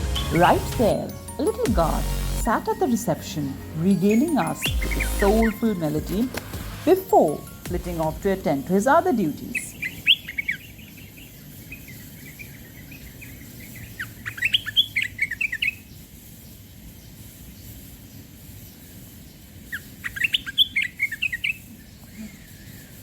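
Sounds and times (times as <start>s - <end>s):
songbird singing high chirps: 8.5s - 15.9s, 19.7s - 23.0s.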